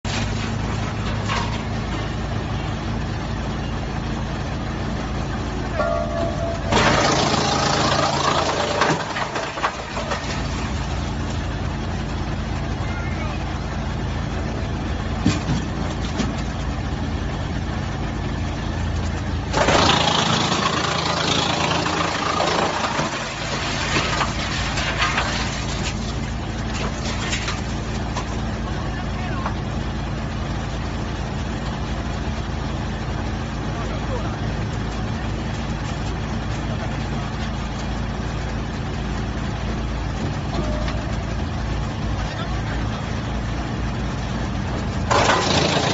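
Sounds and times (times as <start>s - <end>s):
wood chipper running: 0.0s - 45.9s
wood chipping through cutters: 6.7s - 10.4s, 19.0s - 28.3s, 45.0s - 45.9s.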